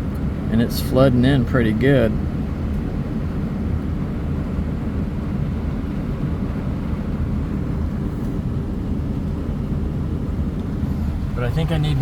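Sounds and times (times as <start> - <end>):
tractor engine droning: 10.4 - 12.0.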